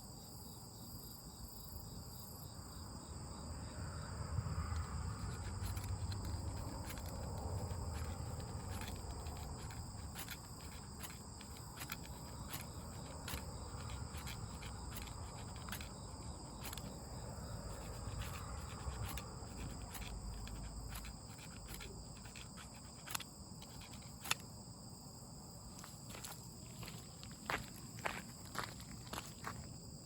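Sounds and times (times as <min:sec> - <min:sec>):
insects chirring: 0:00.0 - 0:30.0
small clicks: 0:17.7 - 0:24.5.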